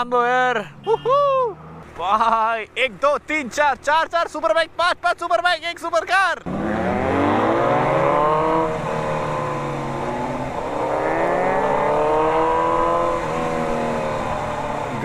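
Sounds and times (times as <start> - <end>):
engine accelerating through gears: 6.4 - 15.0.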